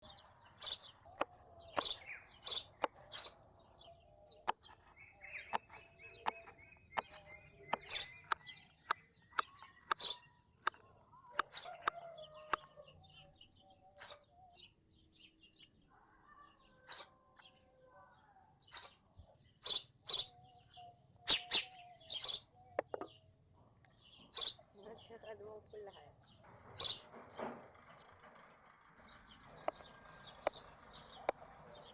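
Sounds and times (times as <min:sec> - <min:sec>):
faint lower bird calls: 0:00.0 - 0:23.3
small birds chirping: 0:00.0 - 0:31.9
sharp clicks: 0:09.4 - 0:10.8.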